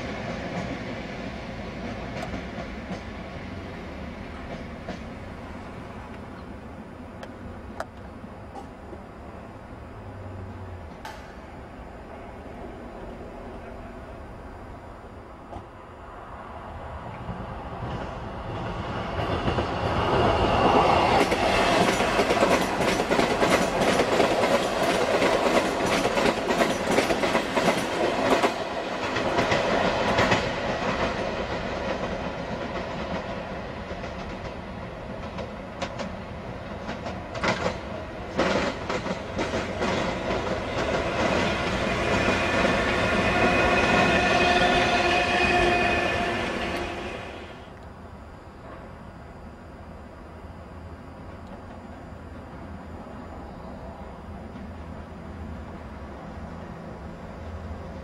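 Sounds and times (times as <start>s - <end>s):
electric train whine: 0.0s - 58.0s
train wheels clattering over rail joints: 1.8s - 3.6s, 4.3s - 5.4s, 17.8s - 44.6s.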